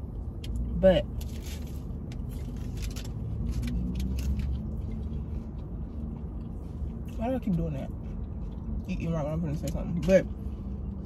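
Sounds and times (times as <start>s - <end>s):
car engine running: 0.0s - 11.0s
person chewing crunchy food: 1.2s - 7.0s.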